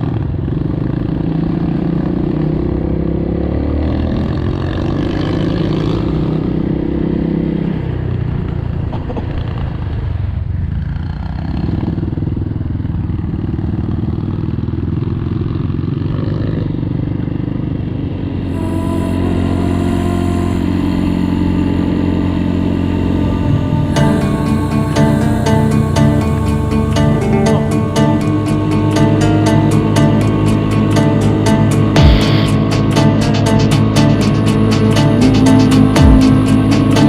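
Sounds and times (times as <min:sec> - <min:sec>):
motorcycle engine running: 0:20.6 - 0:37.0
music: 0:23.7 - 0:37.0.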